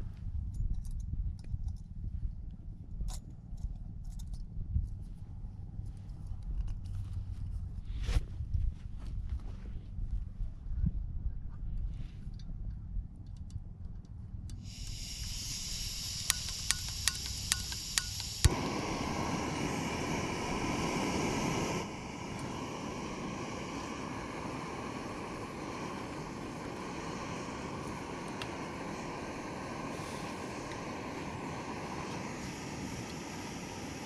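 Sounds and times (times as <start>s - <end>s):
igniter clicking: 13.2s - 18.7s
gas burner roaring: 14.4s - 34.0s
gas hissing from valve: 14.5s - 34.0s.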